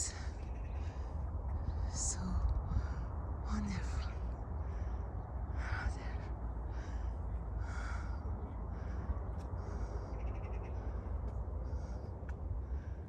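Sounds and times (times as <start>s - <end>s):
bird calls: 0.0s - 1.1s, 9.6s - 12.1s
low rumble: 0.0s - 13.0s.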